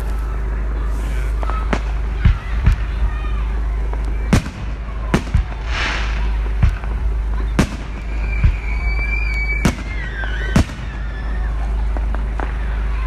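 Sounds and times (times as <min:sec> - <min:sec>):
fireworks crackle: 0:00.0 - 0:13.0
fireworks bangs: 0:00.8 - 0:13.0
high steady whistle: 0:07.4 - 0:11.8.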